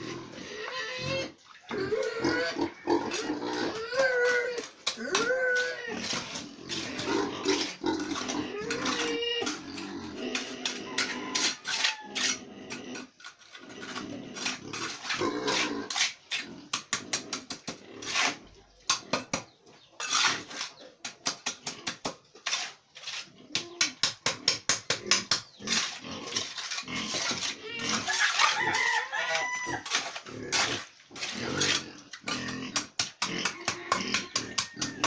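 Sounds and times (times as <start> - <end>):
pig grunts: 0.0 - 19.2, 30.2 - 34.7.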